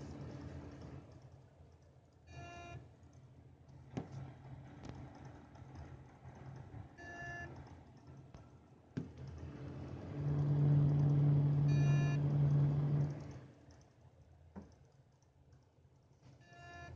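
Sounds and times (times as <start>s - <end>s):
low buzzing hum: 9.0s - 14.0s
short beeps: 11.7s - 12.2s.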